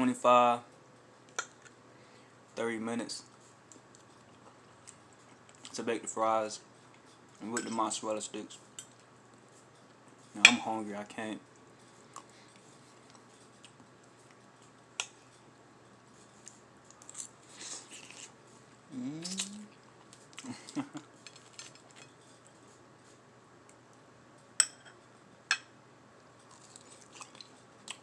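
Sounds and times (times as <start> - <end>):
person chewing food: 12.0 - 15.4, 16.2 - 22.6, 26.4 - 28.0
person humming mm: 18.9 - 19.8.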